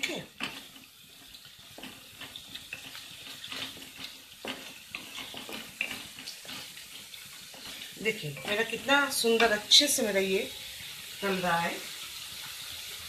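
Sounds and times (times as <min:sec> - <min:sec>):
spatula scraping pan: 0:00.0 - 0:10.2
spice paste sizzling in oil: 0:00.0 - 0:13.0.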